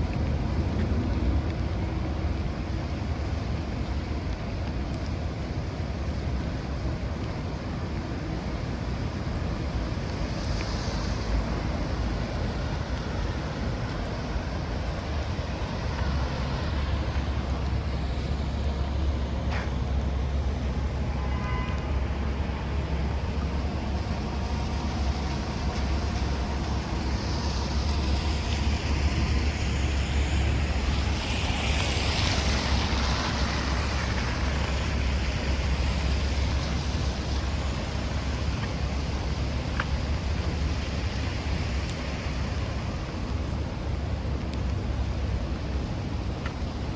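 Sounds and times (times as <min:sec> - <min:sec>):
heavy rain hiss: 0:00.0 - 0:46.9
wet street noise: 0:00.0 - 0:46.9.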